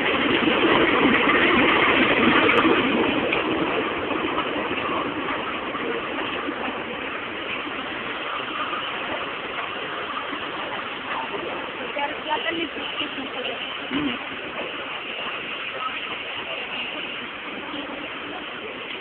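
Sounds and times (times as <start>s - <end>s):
train running: 0.0s - 19.0s.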